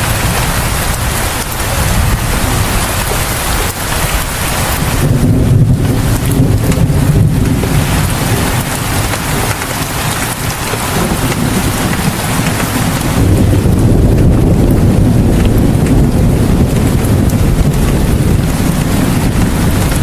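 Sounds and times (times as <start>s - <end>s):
heavy rain falling: 0.0s - 20.0s
low rumble: 4.5s - 20.0s.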